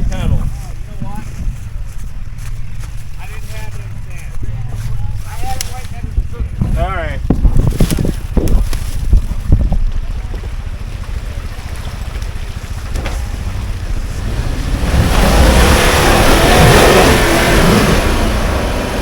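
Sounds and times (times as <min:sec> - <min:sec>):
wind on microphone: 0:00.0 - 0:03.2, 0:03.9 - 0:11.4
off-road vehicle engine rumble: 0:00.0 - 0:19.0
wheels rushing on dirt: 0:00.0 - 0:19.0.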